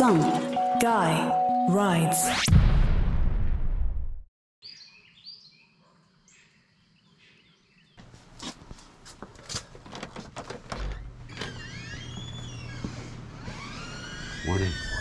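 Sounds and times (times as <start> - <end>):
birds chirping: 4.6 - 8.0.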